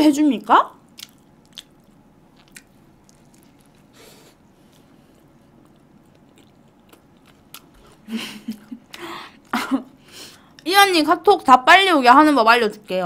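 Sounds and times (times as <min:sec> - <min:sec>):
person chewing: 0:00.9 - 0:09.6.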